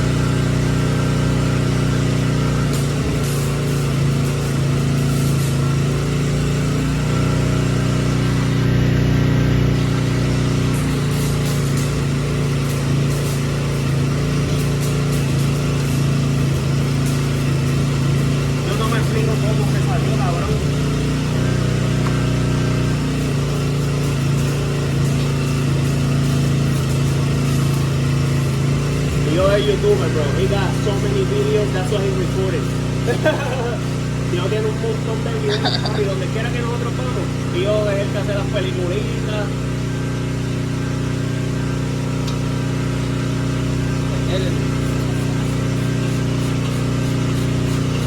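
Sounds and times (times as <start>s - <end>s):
engine humming steadily: 0.0s - 48.0s.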